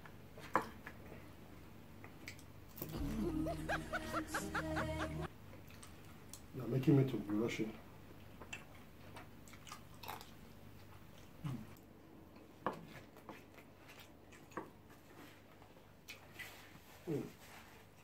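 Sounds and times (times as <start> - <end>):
faint chewing and mouth sounds: 0.0 - 3.0, 5.5 - 6.6, 7.8 - 18.0.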